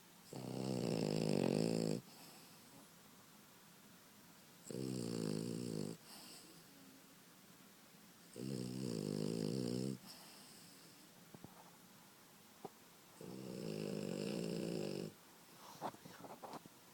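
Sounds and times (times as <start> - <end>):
puppy snoring: 0.2 - 2.7, 4.6 - 6.6, 8.3 - 11.0, 13.2 - 15.2
quiet breathing: 1.4 - 3.0, 5.9 - 7.1, 9.9 - 11.9, 13.1 - 16.6.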